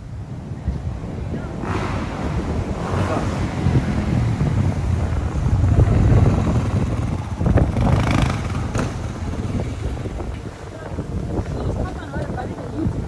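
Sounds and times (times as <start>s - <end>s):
wind buffeting microphone: 0.0s - 13.0s
dirt bike engine: 1.1s - 10.4s.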